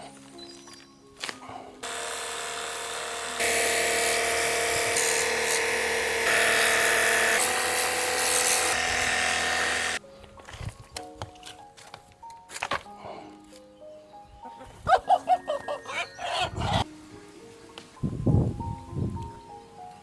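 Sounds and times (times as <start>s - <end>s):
small motor whirring: 1.8s - 10.0s.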